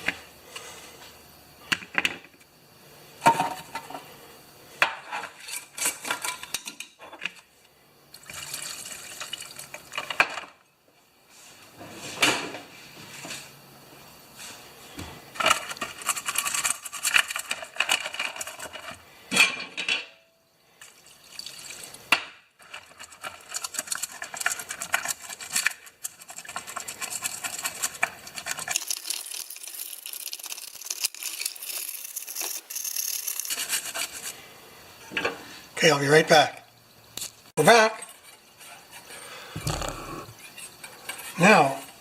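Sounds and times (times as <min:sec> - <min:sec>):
scraping and rubbing of small parts: 0:15.3 - 0:19.1, 0:22.6 - 0:34.5, 0:38.0 - 0:42.0.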